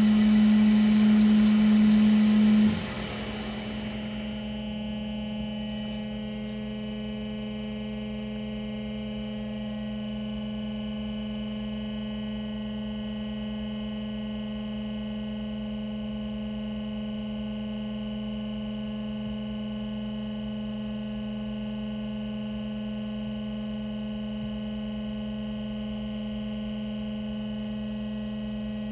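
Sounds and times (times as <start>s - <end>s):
bandsaw humming: 0.0s - 5.0s.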